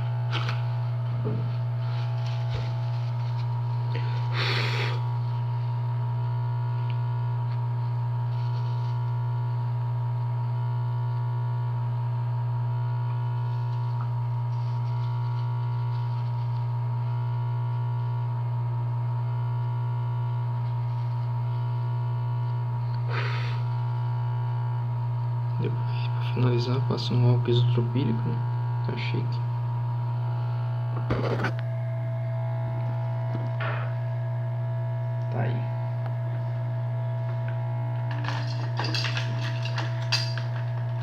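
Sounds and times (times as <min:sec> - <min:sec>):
electrical mains hum: 0:00.0 - 0:41.0
short hisses: 0:23.1 - 0:23.6.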